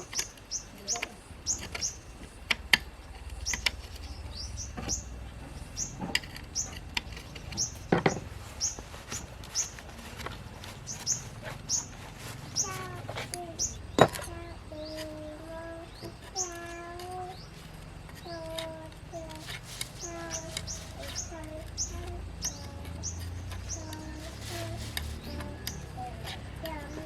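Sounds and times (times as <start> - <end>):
small bird chirping: 0.0 - 27.0
sharp knocks: 4.7 - 8.3.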